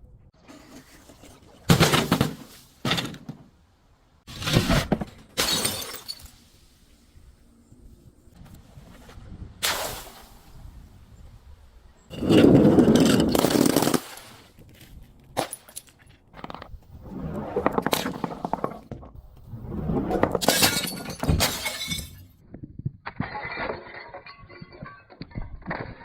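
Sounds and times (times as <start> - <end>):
glass being crushed: 5.4 - 6.4, 20.3 - 22.3.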